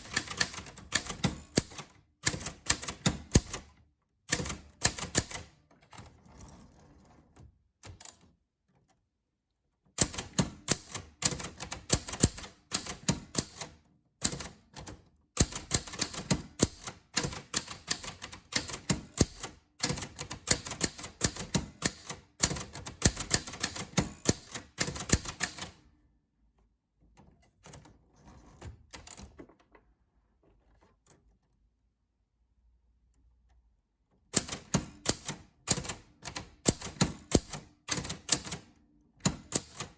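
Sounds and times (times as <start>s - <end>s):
typewriter keys striking: 0.0s - 3.7s, 4.3s - 5.5s, 10.0s - 25.8s, 34.4s - 39.9s.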